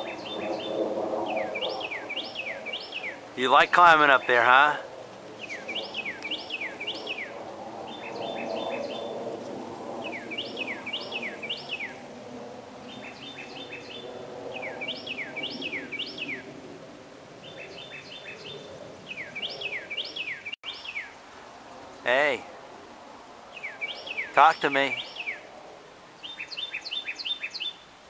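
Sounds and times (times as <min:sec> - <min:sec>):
songbird singing: 0:00.0 - 0:09.4, 0:10.0 - 0:12.0, 0:12.8 - 0:16.6, 0:17.4 - 0:22.7, 0:23.5 - 0:28.0.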